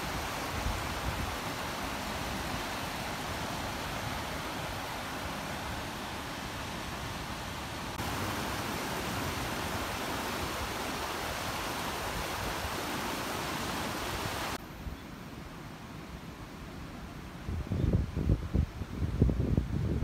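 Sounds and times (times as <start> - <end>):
rushing outdoor noise: 0.0 - 20.0.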